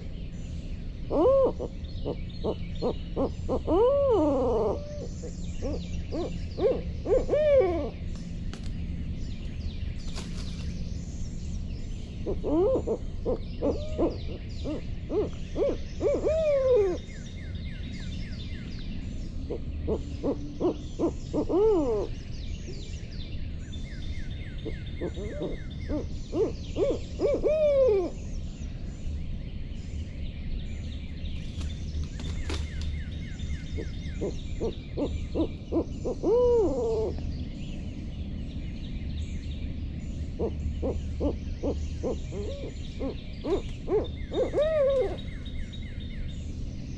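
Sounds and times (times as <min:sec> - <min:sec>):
owl hooting: 0:01.0 - 0:08.1, 0:12.2 - 0:17.2, 0:19.5 - 0:22.2, 0:24.6 - 0:28.3, 0:33.6 - 0:37.3, 0:40.3 - 0:46.0.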